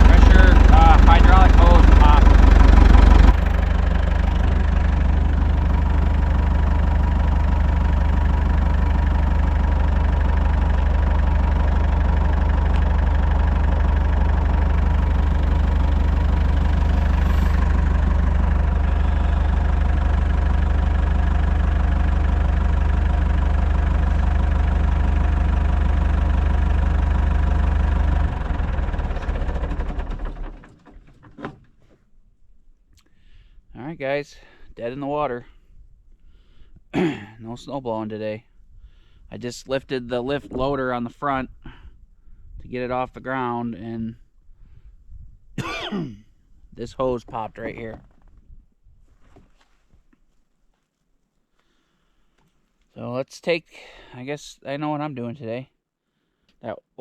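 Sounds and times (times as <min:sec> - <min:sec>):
tractor engine running: 0:00.0 - 0:32.2, 0:39.8 - 0:41.6, 0:46.8 - 0:48.4.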